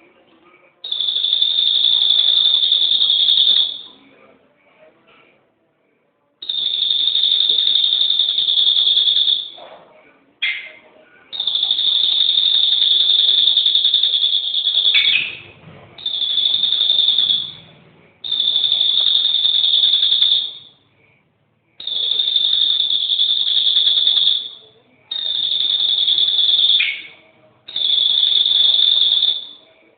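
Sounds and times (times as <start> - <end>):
songbird high trill: 11.4 - 20.8, 21.8 - 29.6.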